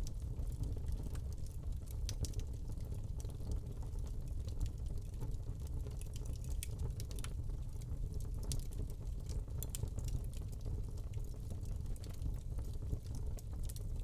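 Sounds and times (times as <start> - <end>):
log crackling and popping: 5.9 - 14.0.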